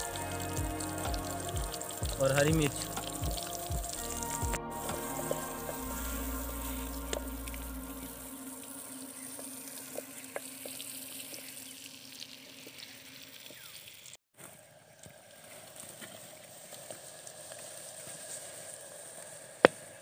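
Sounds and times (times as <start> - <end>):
food sizzling in hot oil: 0.0 - 14.2.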